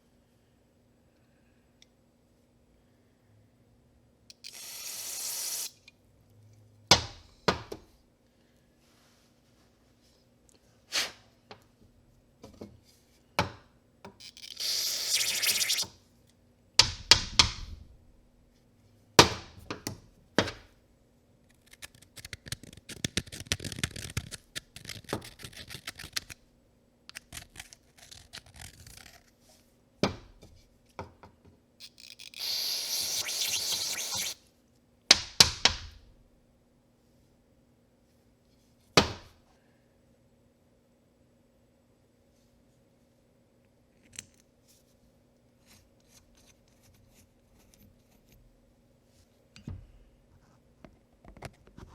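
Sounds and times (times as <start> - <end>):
spray can hissing: 4.4 - 5.8, 14.4 - 15.9, 31.9 - 34.4
rapid scratching: 14.4 - 15.9, 31.9 - 34.4.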